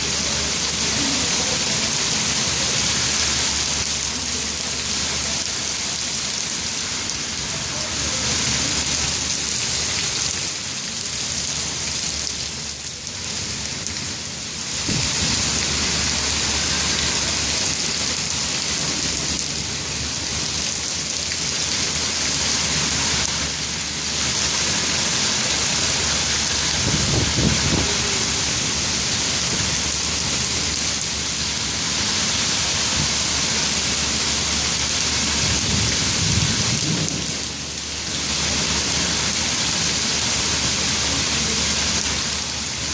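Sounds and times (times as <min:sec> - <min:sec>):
heavy rain falling: 0:00.0 - 0:42.9
low rumbles: 0:22.7 - 0:37.9.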